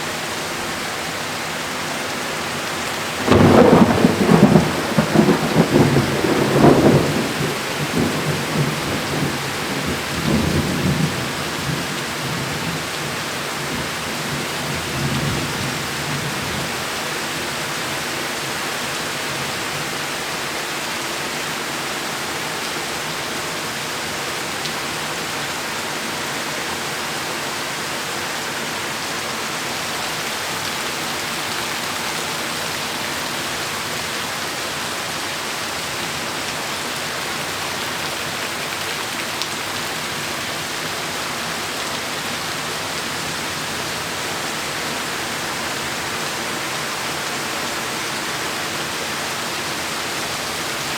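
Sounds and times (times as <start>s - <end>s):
heavy rain falling: 0.0s - 50.9s
thunder rumbling: 3.2s - 13.0s.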